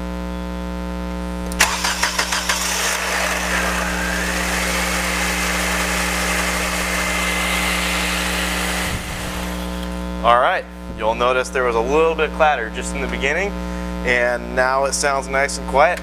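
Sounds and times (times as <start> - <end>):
car engine cranking and idling: 1.5 - 10.0.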